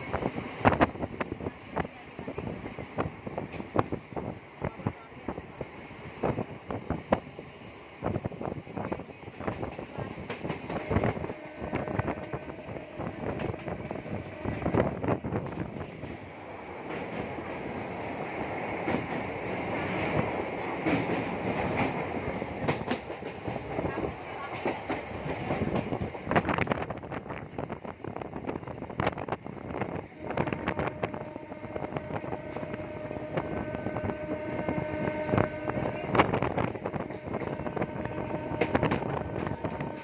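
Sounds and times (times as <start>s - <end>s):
train rumbling over steel bridge: 0.0s - 40.0s.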